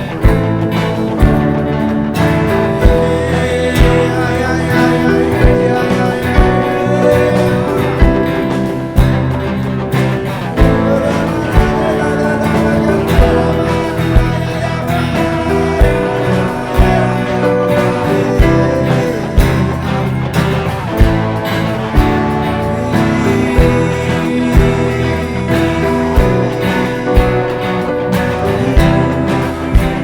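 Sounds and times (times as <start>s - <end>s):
acoustic guitar: 0.0s - 30.0s
live band music: 0.0s - 30.0s.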